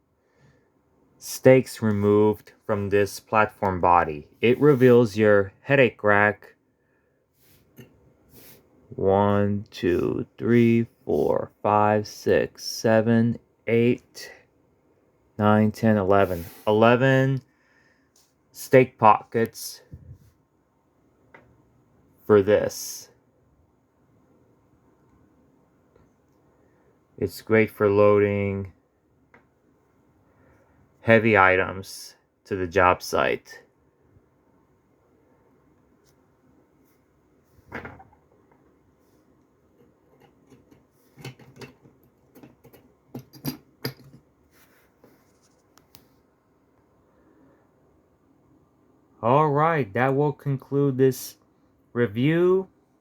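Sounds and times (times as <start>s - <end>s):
person speaking: 1.2s - 6.5s, 8.4s - 14.4s, 15.4s - 17.4s, 18.6s - 20.1s, 49.2s - 52.7s.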